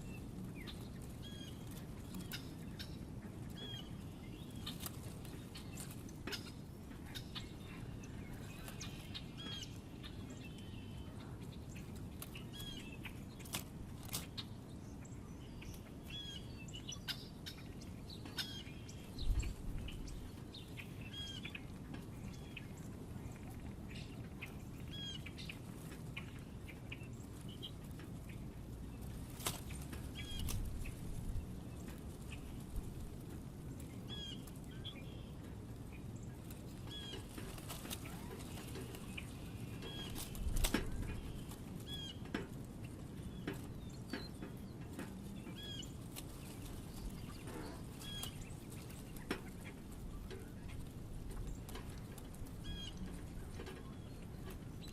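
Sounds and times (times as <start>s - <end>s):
small birds chirping: 0.0s - 54.9s
wing flutters: 36.4s - 42.2s.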